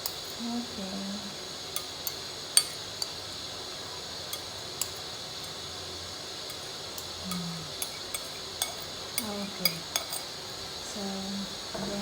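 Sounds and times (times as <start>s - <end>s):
utensil clinking against bowl: 6.5s - 10.4s.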